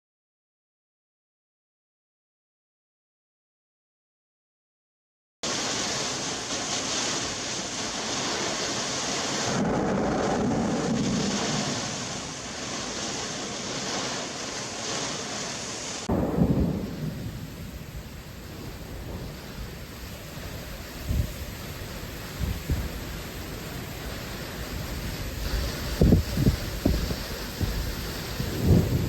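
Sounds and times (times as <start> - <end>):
heavy rain: 5.4 - 29.0
wind hiss: 5.4 - 29.0
thunder rumbling: 5.5 - 15.3, 16.0 - 29.0
loud thunderclap: 9.4 - 13.0, 16.0 - 23.6, 24.8 - 29.0.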